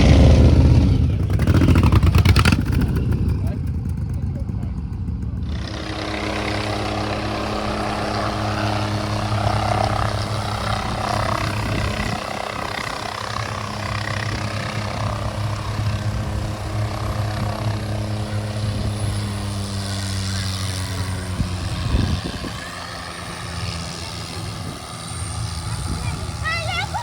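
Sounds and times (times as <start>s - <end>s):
helicopter running: 0.0s - 27.0s.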